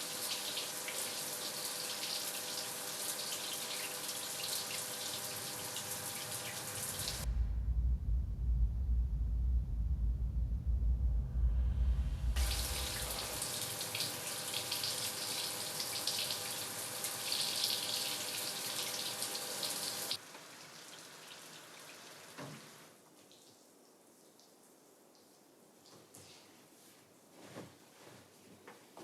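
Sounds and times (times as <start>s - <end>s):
water running from a tap: 0.0s - 7.2s, 12.4s - 22.9s
deep rumble: 7.0s - 13.6s.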